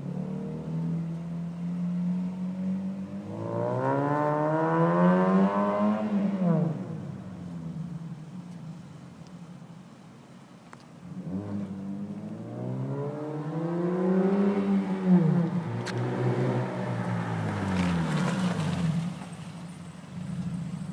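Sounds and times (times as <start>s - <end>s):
car engine revving open exhaust: 0.0s - 8.1s, 11.0s - 20.9s.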